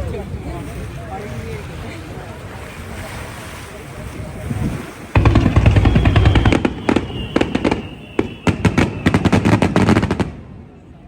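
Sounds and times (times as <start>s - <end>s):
thin high whistle: 5.2s - 9.8s
fireworks bursts: 5.2s - 10.3s.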